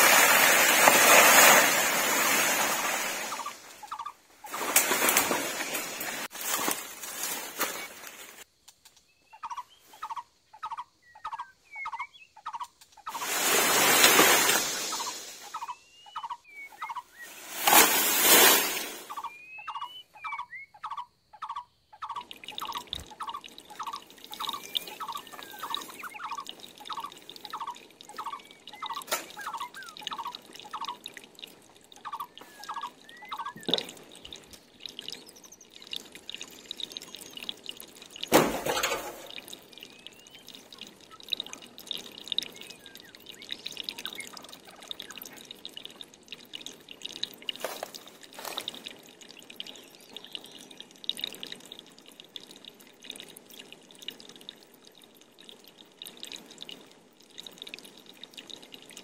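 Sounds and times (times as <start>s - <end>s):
higher bird chirps: 9.0s - 17.7s, 18.4s - 31.2s, 31.8s - 38.3s, 39.4s - 45.4s
bird calling repeated notes: 9.2s - 13.2s, 14.4s - 17.4s, 19.1s - 31.2s, 31.9s - 37.5s.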